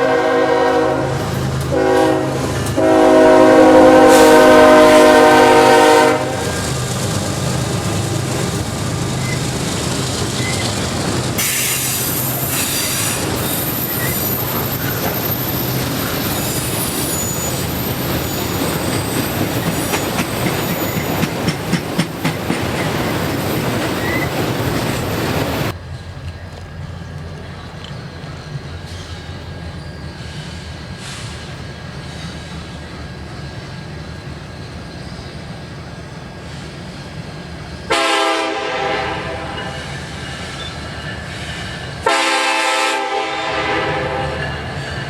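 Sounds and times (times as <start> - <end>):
locomotive air horn: 0.0 - 6.7, 37.9 - 40.0, 42.0 - 44.6
wheels clattering over rails: 6.6 - 27.9
high wheel squeal: 10.3 - 25.7, 28.2 - 31.5, 39.6 - 42.0.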